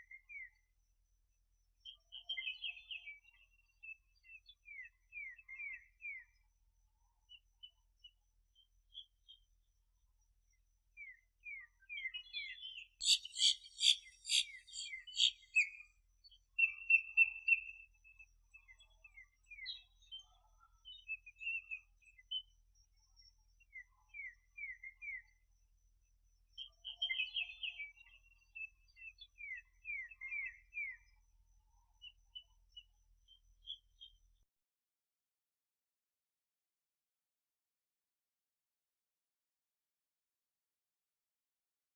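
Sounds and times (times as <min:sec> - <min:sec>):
small birds chirping: 0:00.0 - 0:00.6, 0:01.8 - 0:06.4, 0:11.0 - 0:25.4, 0:26.6 - 0:31.2.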